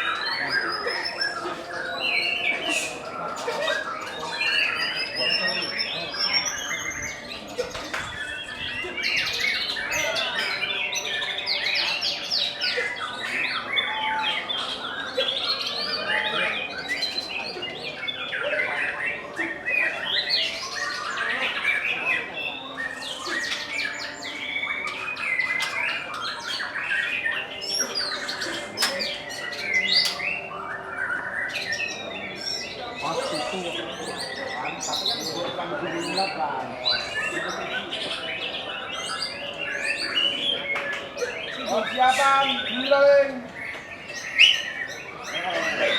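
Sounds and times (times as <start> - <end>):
songbirds chorus: 0.0 - 45.9.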